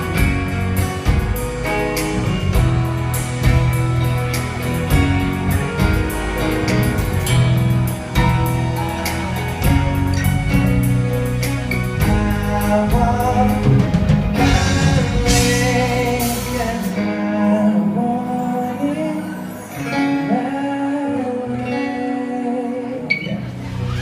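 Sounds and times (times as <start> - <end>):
drums: 0.0 - 17.4, 23.4 - 24.0
guitar: 0.0 - 24.0
person singing: 11.4 - 23.8.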